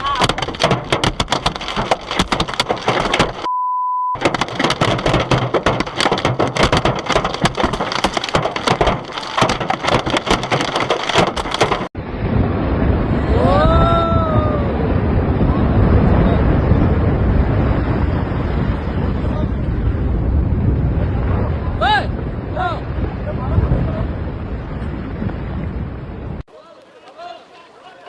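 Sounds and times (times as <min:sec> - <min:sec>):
hail or rain striking hard surfaces: 0:00.0 - 0:03.5, 0:04.2 - 0:11.9
censor beep: 0:03.5 - 0:04.2
rushing wind: 0:04.2 - 0:26.5
rising and falling wail: 0:13.2 - 0:14.9.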